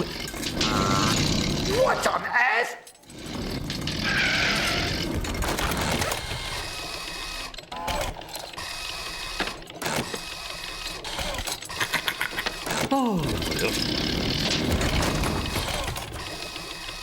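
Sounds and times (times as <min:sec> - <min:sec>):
mechanical clattering: 0:02.8 - 0:10.3, 0:11.0 - 0:17.0.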